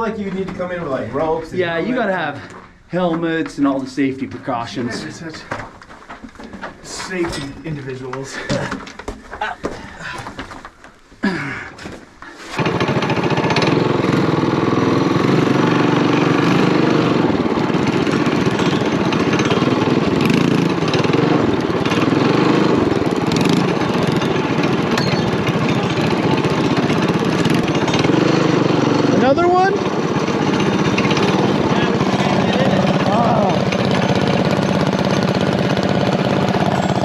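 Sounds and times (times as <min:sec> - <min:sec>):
small mini bike engine running: 0:12.5 - 0:37.0.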